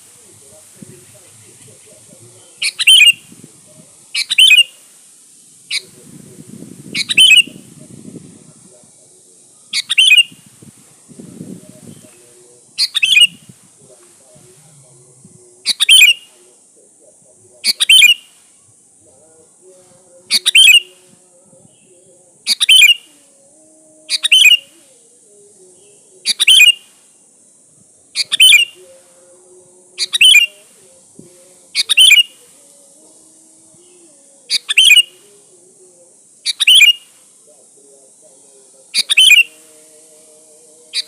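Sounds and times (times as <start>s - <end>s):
faint steady hiss: 0.0s - 41.0s
bulbul calling: 2.3s - 3.3s, 4.1s - 4.8s, 6.9s - 7.6s, 9.7s - 10.4s, 12.8s - 13.4s, 15.6s - 16.3s, 17.6s - 18.3s, 20.3s - 21.0s, 22.5s - 23.1s, 24.1s - 24.7s, 26.2s - 26.8s, 28.2s - 29.0s, 30.0s - 30.8s, 31.7s - 32.4s, 34.5s - 35.4s, 36.4s - 37.1s, 38.9s - 39.6s.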